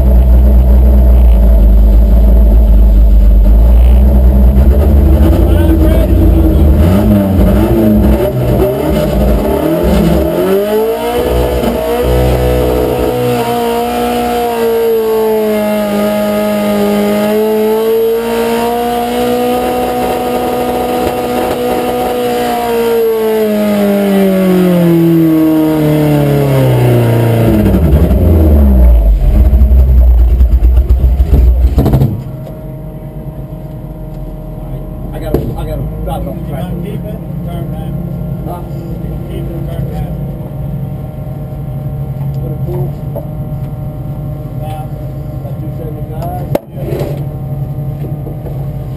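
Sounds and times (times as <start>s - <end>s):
loud low rumble: 0.0s - 13.1s, 26.7s - 47.9s
truck engine at full throttle: 0.0s - 48.9s.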